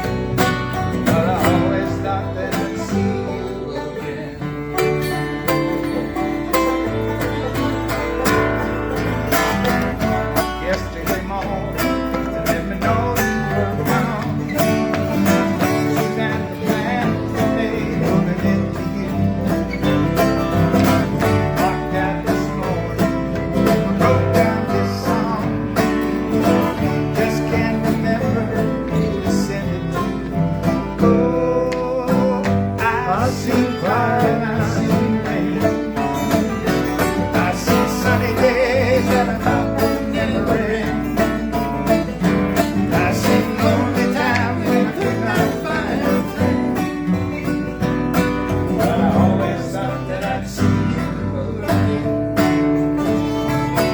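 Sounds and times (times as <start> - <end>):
banjo: 0.0 - 53.9
country string band playing: 0.0 - 53.9
guitar picked and strummed: 0.0 - 53.9.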